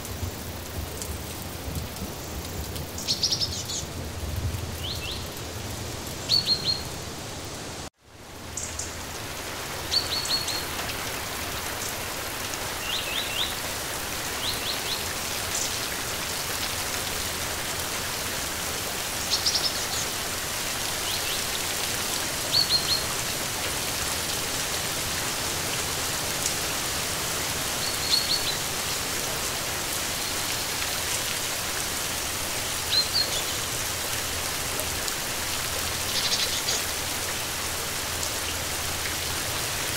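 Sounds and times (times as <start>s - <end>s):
steady rain falling: 0.0s - 39.9s
small birds chirping: 3.0s - 3.9s, 6.2s - 7.0s, 19.3s - 20.2s, 36.1s - 36.9s.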